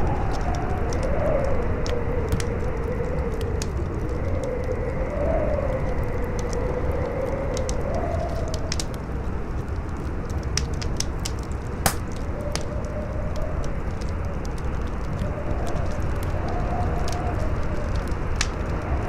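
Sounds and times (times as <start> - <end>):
howling wind: 0.0 - 19.0
campfire crackling and popping: 7.3 - 19.0.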